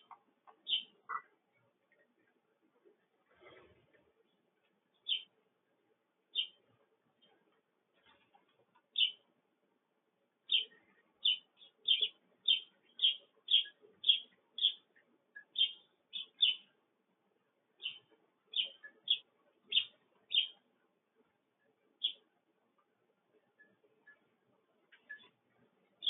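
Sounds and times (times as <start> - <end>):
sparrow chirping: 0.0 - 2.1, 4.3 - 5.4, 6.3 - 7.4, 8.0 - 9.3, 10.4 - 16.8, 17.7 - 20.7, 22.0 - 22.4, 23.4 - 26.0.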